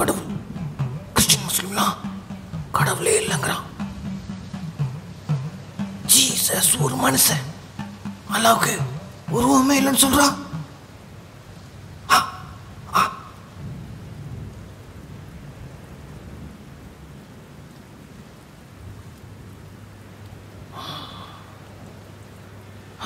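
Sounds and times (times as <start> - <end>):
low rumble: 0.0 - 9.8
rain-like hiss: 0.0 - 23.0.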